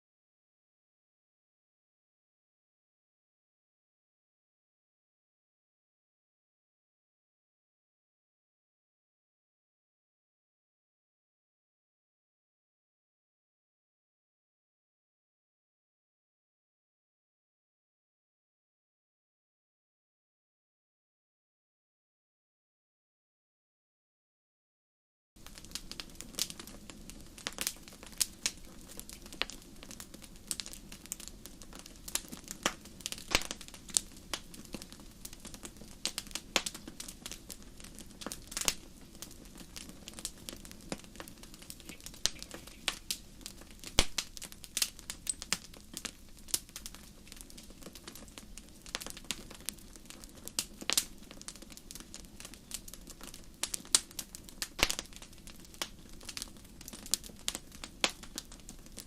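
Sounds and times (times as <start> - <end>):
wood fire crackling and popping: 25.4 - 59.0.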